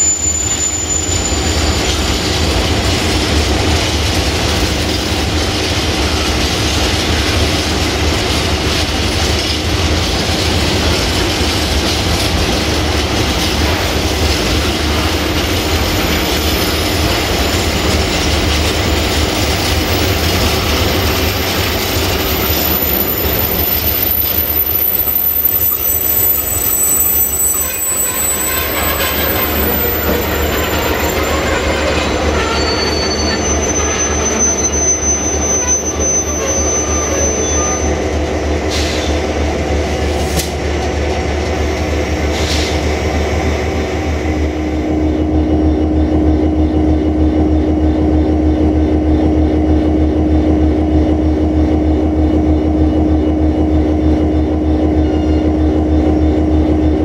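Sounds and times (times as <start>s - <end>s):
high wheel squeals: 0.0s - 2.5s, 15.5s - 38.2s
steel wheels rumbling on rails: 0.0s - 57.0s.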